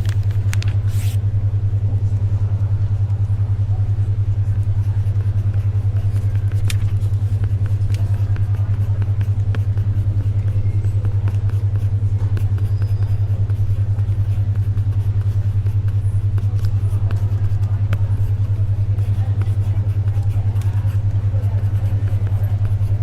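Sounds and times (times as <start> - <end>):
paper and pencil clicks and taps: 0.0 - 1.2, 4.6 - 23.0
pulsing low hum: 0.0 - 23.0.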